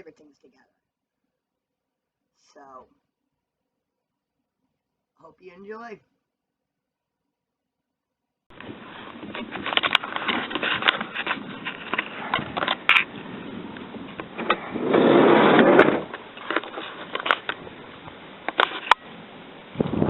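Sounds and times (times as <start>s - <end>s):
rustle: 8.5s - 20.0s
camera handling noise: 8.6s - 13.1s.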